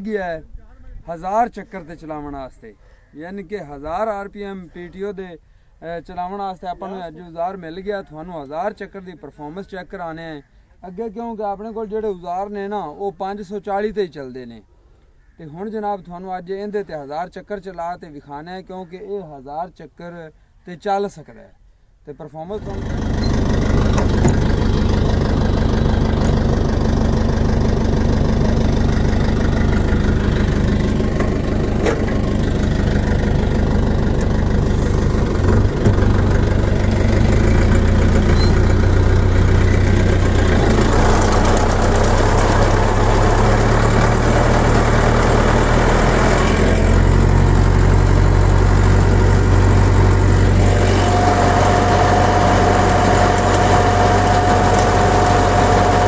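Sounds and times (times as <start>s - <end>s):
tractor diesel engine running: 22.5s - 56.0s
steady whine: 49.0s - 56.0s.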